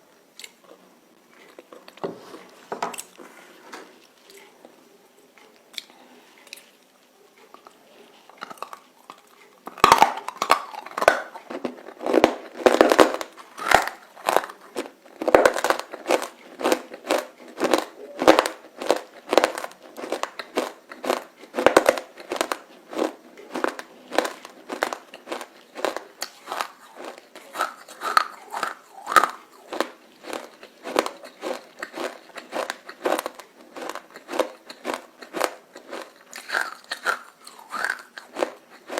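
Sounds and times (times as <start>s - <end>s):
crunching and chewing: 0.4s - 3.2s, 3.9s - 38.9s.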